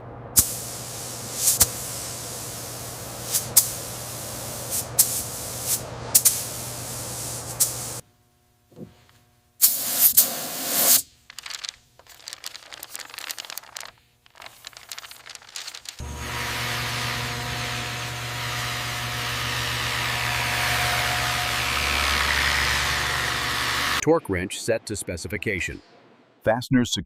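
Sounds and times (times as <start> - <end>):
steady low hum: 0.0 - 24.0
spray paint hissing: 0.4 - 8.0, 9.6 - 11.2
faint irregular crackling: 11.2 - 16.0.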